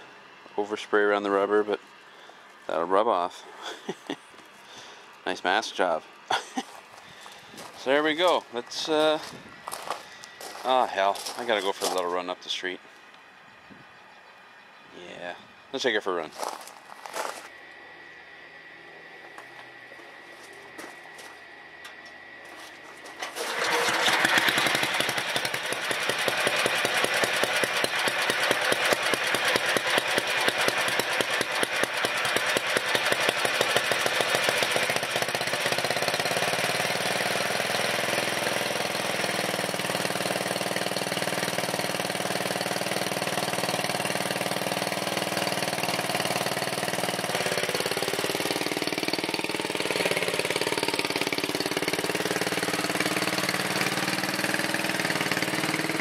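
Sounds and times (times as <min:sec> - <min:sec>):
lawn tractor engine running: 0:06.7 - 0:12.4, 0:18.4 - 0:56.0.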